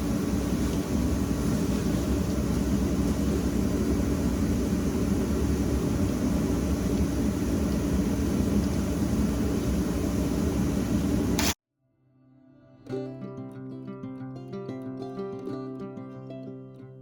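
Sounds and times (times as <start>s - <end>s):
power tool cutting steel: 11.4s - 11.6s.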